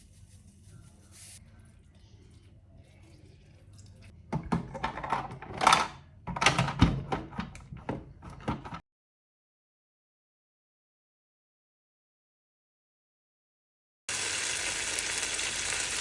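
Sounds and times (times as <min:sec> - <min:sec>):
kitchen items knocking and clattering: 0:04.3 - 0:08.8.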